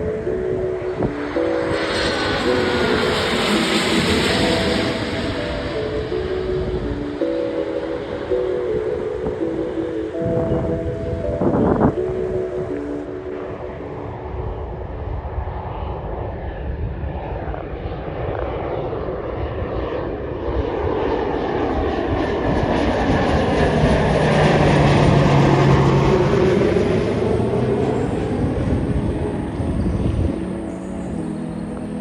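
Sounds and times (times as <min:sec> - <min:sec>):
airplane engines passing by: 0:00.0 - 0:32.0.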